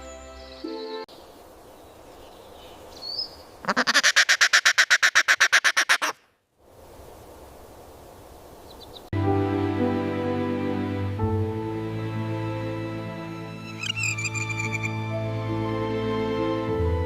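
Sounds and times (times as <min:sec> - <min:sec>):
faint outdoor hiss: 0:01.0 - 0:04.6, 0:06.2 - 0:09.1
bird quacking call: 0:03.6 - 0:06.3, 0:13.8 - 0:15.0.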